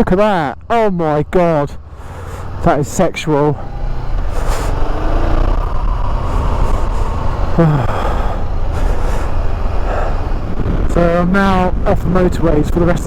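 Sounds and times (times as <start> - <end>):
motorcycle engine running: 1.0 - 13.0
wind rush on microphone: 3.6 - 13.0.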